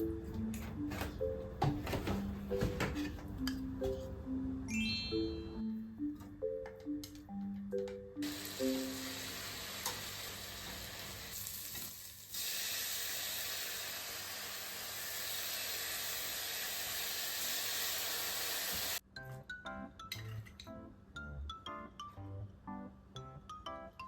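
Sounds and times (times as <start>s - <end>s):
food sizzling in a pan: 8.2s - 19.0s.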